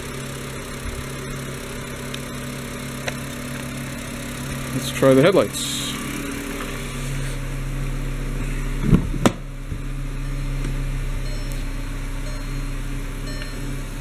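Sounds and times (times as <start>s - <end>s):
car engine idling: 0.0s - 14.0s
car door clunks: 8.8s - 9.8s.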